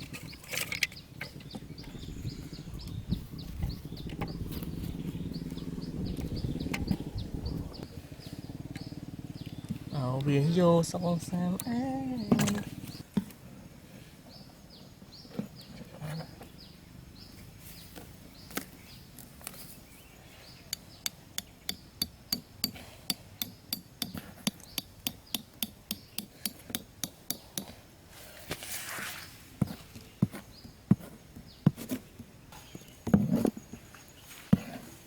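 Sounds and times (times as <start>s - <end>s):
small bird chirping: 0.0s - 13.1s.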